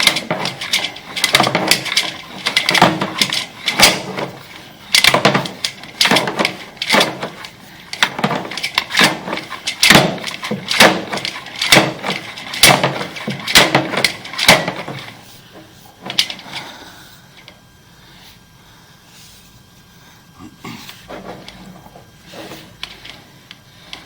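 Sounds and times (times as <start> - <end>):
cable knocking and clattering in drain: 0.0 - 15.2.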